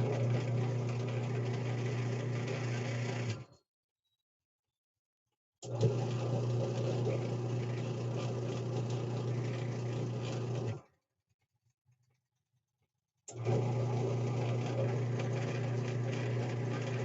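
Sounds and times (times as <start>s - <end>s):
washing machine motor humming: 0.0s - 3.5s, 5.6s - 10.8s, 13.3s - 17.0s.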